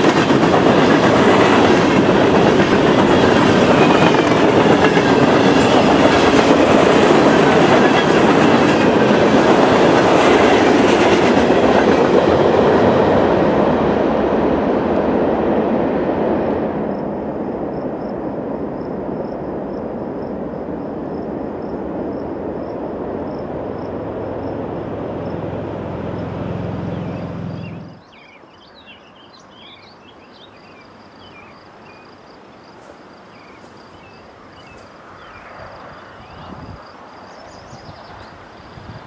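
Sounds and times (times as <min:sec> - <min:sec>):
freight train rumbling by: 0:00.0 - 0:39.0
high insect trill: 0:17.7 - 0:26.3
bird chirps: 0:26.8 - 0:32.1.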